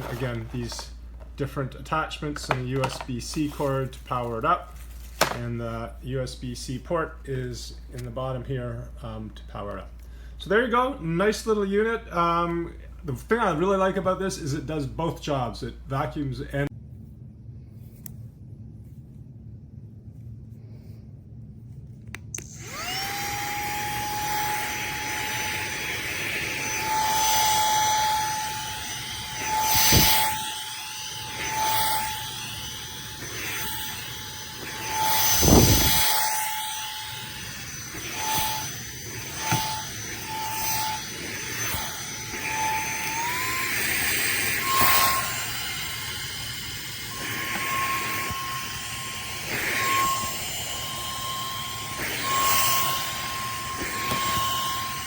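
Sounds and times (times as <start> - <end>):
handheld vacuum motor whining: 0.0 - 5.4, 22.3 - 55.0.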